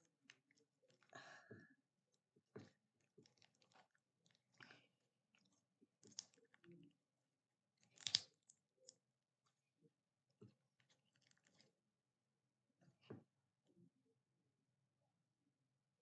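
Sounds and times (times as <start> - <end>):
slime squelch: 0.0 - 7.0, 7.6 - 11.8.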